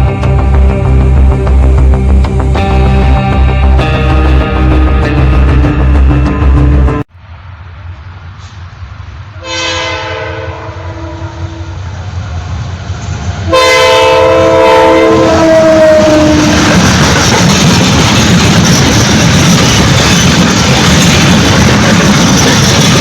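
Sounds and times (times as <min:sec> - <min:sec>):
train engine and wheel rumble: 0:00.0 - 0:23.0
locomotive air horn: 0:09.4 - 0:11.8, 0:13.5 - 0:16.6.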